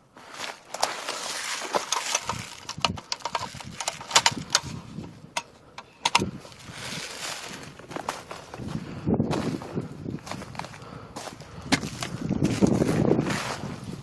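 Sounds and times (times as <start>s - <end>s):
footsteps crunching dry leaves: 0.0s - 4.1s, 6.4s - 14.0s
twigs snapping: 0.4s - 4.8s, 11.7s - 12.8s.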